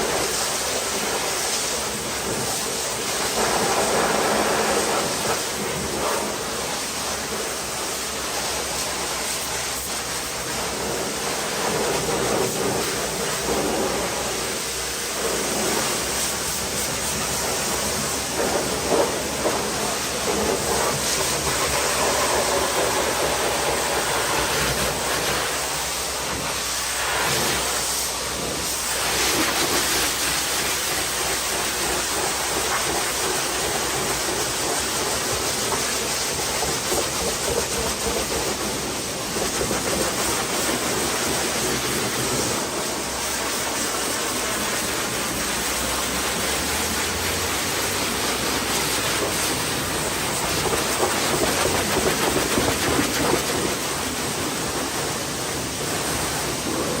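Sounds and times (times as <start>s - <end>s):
pressure washer spraying car: 0.0s - 57.0s.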